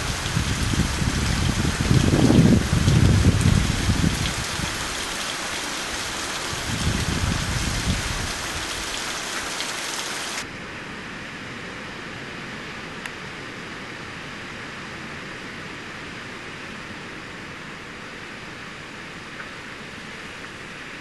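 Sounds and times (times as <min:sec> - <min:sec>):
wind buffeting microphone: 0:00.0 - 0:09.0
heavy rain pouring: 0:00.0 - 0:10.5.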